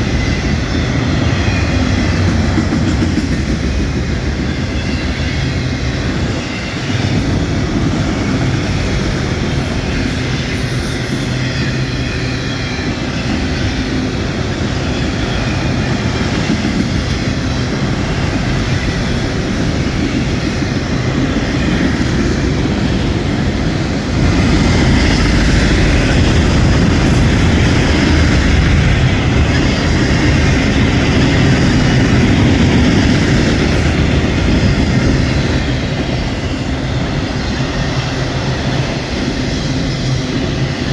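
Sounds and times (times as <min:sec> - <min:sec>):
train rolling past: 0:00.0 - 0:40.9
wind buffeting microphone: 0:12.8 - 0:40.9.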